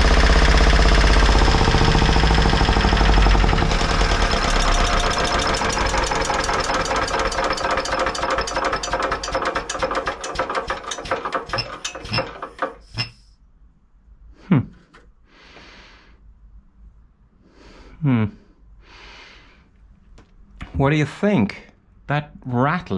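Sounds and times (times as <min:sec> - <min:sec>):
diesel generator engine knocking: 0:00.0 - 0:12.8.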